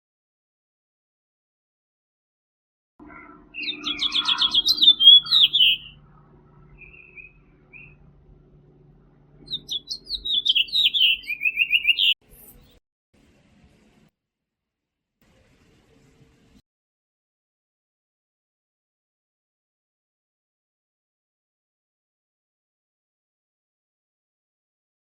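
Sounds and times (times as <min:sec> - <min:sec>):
finch singing: 0:03.0 - 0:08.0, 0:09.4 - 0:12.8.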